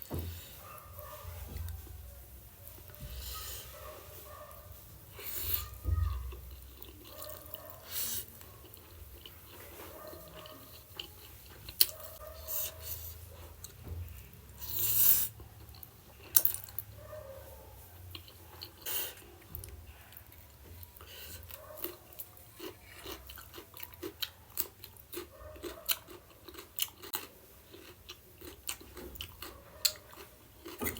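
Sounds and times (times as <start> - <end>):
person chewing crunchy food: 5.1 - 16.9, 18.1 - 30.9.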